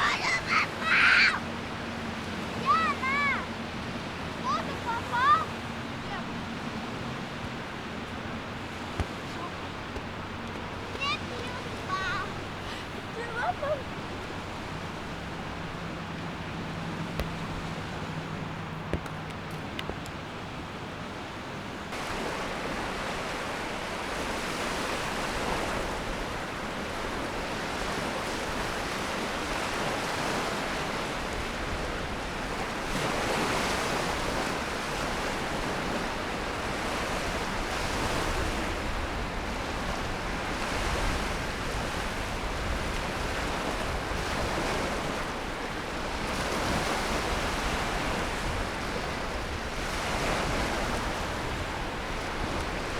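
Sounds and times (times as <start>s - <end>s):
waves washing on shore: 0.0s - 52.9s.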